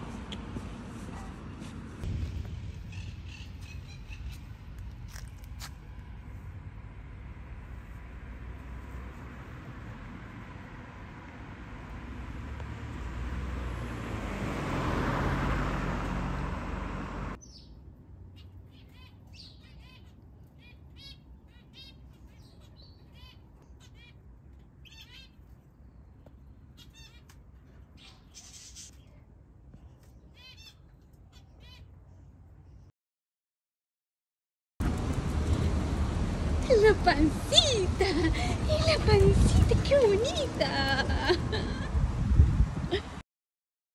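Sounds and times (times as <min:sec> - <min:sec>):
passing traffic rushing: 0:00.0 - 0:17.4, 0:34.8 - 0:42.9
small birds chirping: 0:02.7 - 0:04.9, 0:17.4 - 0:32.9.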